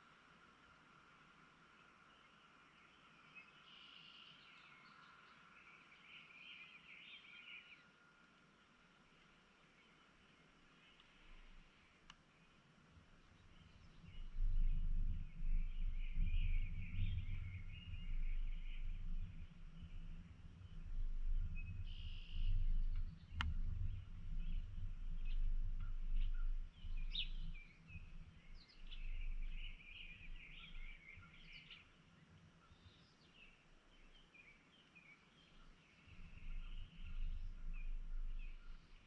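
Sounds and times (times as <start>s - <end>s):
small birds chirping: 0.0s - 39.0s
low rumble: 13.7s - 31.6s, 36.1s - 39.0s.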